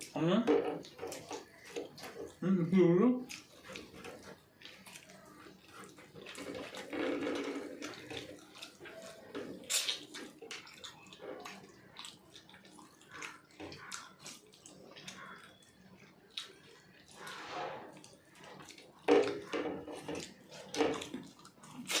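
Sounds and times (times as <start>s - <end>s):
wet chewing: 0.0s - 2.5s, 3.2s - 22.0s
lip smacks: 7.6s - 22.0s.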